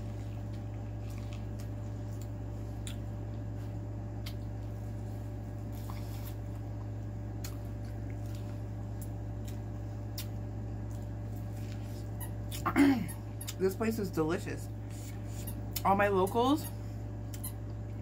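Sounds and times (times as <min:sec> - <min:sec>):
steady low hum: 0:00.0 - 0:18.0
chewing clicks: 0:00.5 - 0:03.1, 0:07.4 - 0:11.1.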